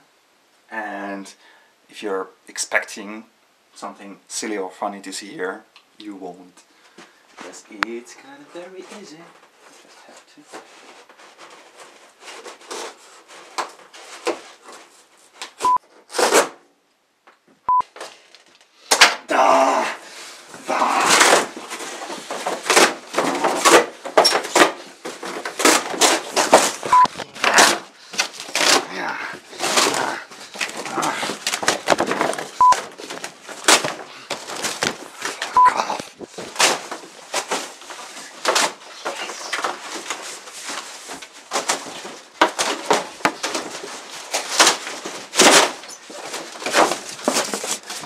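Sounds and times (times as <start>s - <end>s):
cardboard rustling: 7.1s - 16.6s, 20.1s - 48.0s
cardboard scraping and rubbing: 8.5s - 16.6s, 20.1s - 48.0s
short steady beep: 26.9s - 27.1s, 35.6s - 35.8s.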